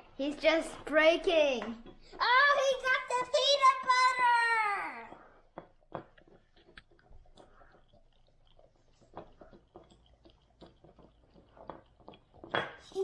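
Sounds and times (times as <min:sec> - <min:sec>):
dog licking and chewing: 0:05.7 - 0:13.0.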